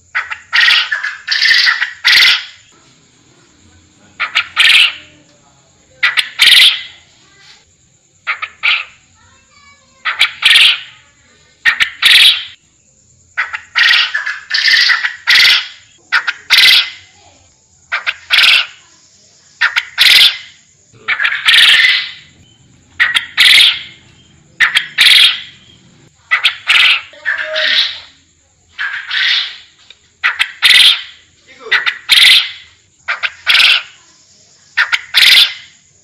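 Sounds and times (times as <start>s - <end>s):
quail calling: 0.0s - 2.8s, 4.2s - 5.2s, 6.0s - 7.1s, 8.2s - 9.0s, 9.9s - 11.0s, 11.6s - 12.6s, 13.4s - 17.1s, 17.9s - 18.9s, 19.6s - 34.1s, 34.8s - 35.8s.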